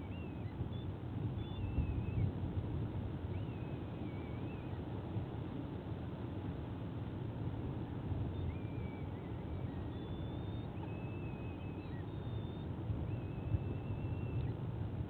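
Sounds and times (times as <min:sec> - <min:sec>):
faint high bird calls: 0:00.0 - 0:02.4, 0:03.2 - 0:05.0, 0:08.2 - 0:14.7
low outdoor rumble: 0:00.0 - 0:15.0.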